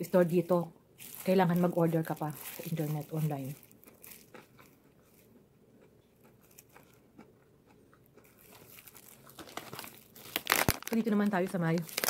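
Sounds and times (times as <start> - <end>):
plastic crinkling: 0.0 - 5.4, 8.2 - 12.0
chewing and mouth sounds: 3.5 - 9.0.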